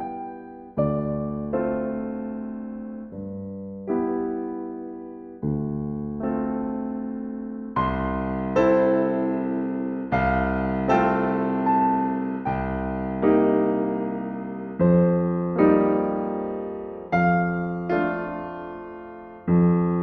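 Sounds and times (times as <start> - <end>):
electric piano chords: 0.0 - 20.0.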